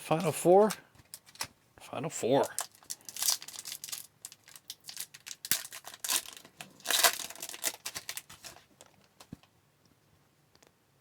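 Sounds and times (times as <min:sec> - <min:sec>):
wrapper tearing and crinkling: 0:00.2 - 0:01.5, 0:02.4 - 0:08.7.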